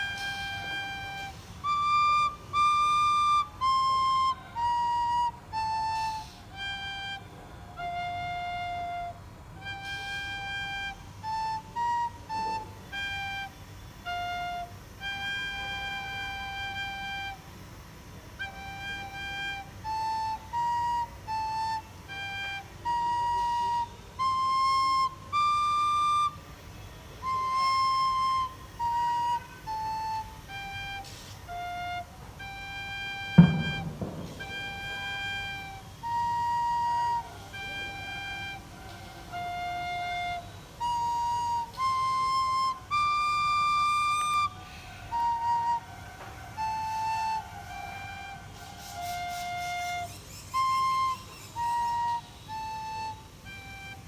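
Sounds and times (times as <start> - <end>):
recorder playing solo melody: 0.0 - 54.0.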